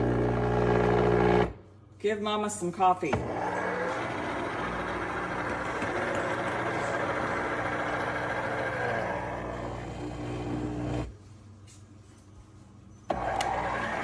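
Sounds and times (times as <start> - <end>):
coffee maker motor whirring: 0.0 - 1.5, 3.2 - 11.1, 13.1 - 14.0.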